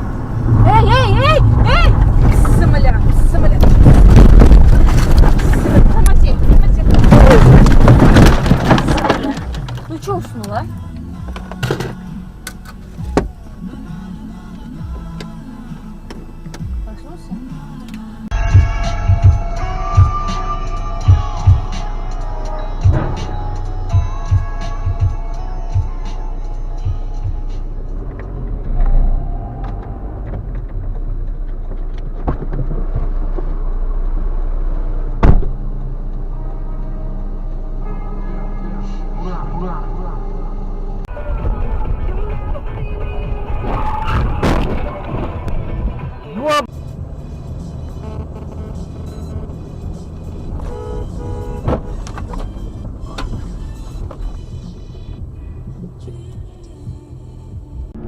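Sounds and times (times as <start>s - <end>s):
car driving rumble: 0.0s - 58.0s
car horn blasts: 47.9s - 49.8s, 50.4s - 53.3s.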